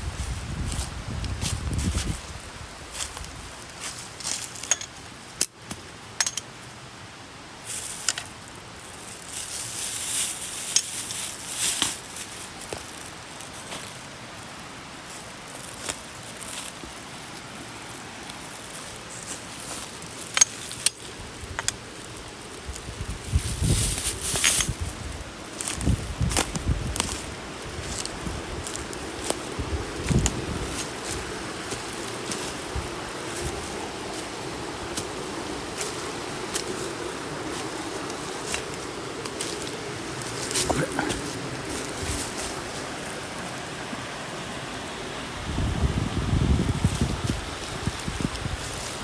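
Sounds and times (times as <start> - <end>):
light metallic clinks and knocks: 4.2 - 5.0, 6.2 - 6.7, 20.2 - 21.9
gear rustling: 15.0 - 44.4.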